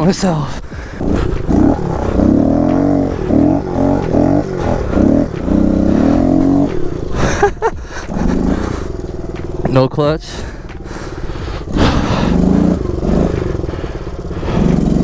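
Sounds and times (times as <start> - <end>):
small motorcycle engine revving: 0.0 - 15.0.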